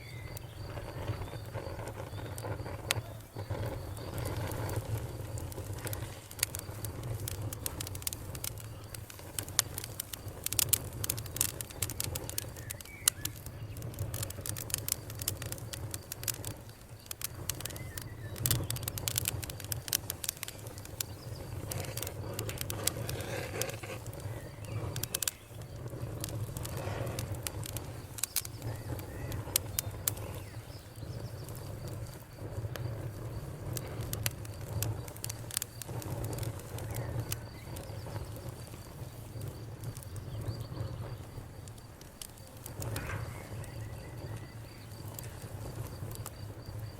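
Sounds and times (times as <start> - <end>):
birds chirping: 0.0 - 41.4, 42.6 - 46.3
campfire crackling and popping: 0.0 - 46.9.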